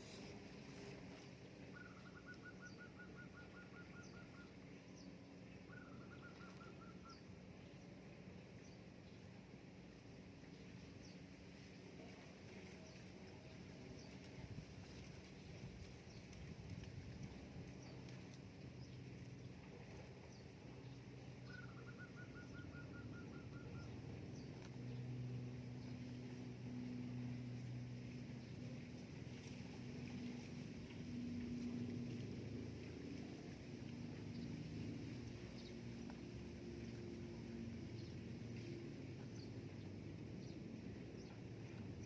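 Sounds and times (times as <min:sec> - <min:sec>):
faint high bird chirps: 0:00.0 - 0:07.3, 0:21.4 - 0:24.5
low steady hum: 0:00.0 - 0:42.0
bird trilling: 0:01.7 - 0:04.5.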